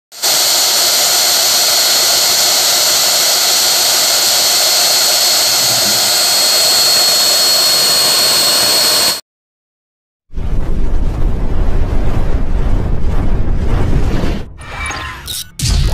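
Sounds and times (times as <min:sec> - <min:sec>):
high whine: 0:00.1 - 0:09.2
rushing machine noise: 0:00.1 - 0:09.2, 0:10.4 - 0:15.7.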